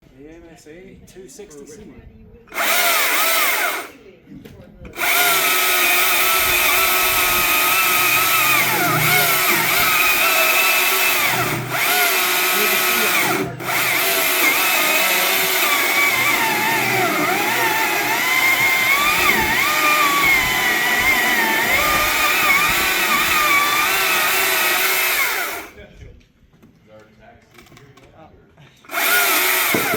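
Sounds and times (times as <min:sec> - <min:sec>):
electric chainsaw cutting: 0:02.5 - 0:03.9, 0:05.0 - 0:25.8, 0:28.9 - 0:29.9.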